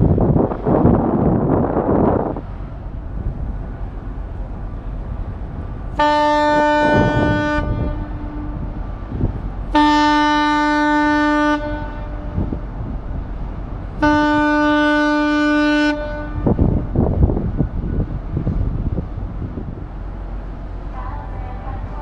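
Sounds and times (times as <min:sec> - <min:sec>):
wind buffeting microphone: 0:00.0 - 0:22.0
ship's horn blasts: 0:05.9 - 0:13.0, 0:13.9 - 0:18.0.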